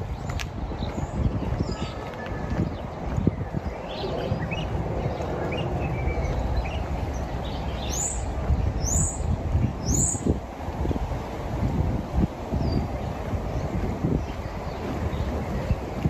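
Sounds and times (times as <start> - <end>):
footsteps: 0.0 - 5.7
birds chirping: 0.0 - 10.4, 12.3 - 16.0.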